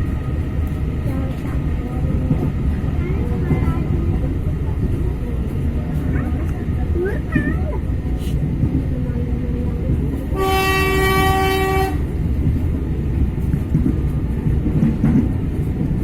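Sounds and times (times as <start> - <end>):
train rumbling: 0.0 - 16.0
locomotive horn blast: 10.4 - 12.1.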